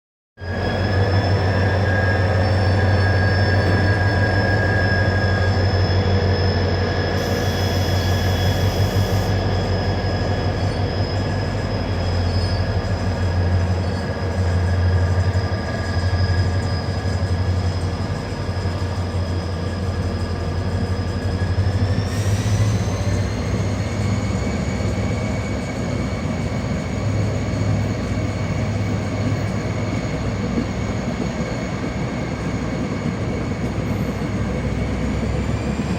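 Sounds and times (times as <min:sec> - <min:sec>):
diesel locomotive drone and whine: 0:00.4 - 0:35.9.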